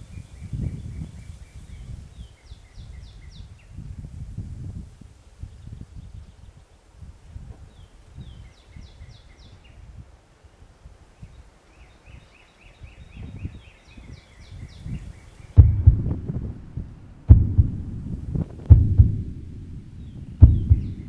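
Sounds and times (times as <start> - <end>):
songbird chirping: 0.0 - 4.0, 7.6 - 10.0, 11.0 - 21.0
wind on microphone: 0.0 - 21.0
low rustling: 14.9 - 21.0
loud thump: 15.6 - 21.0.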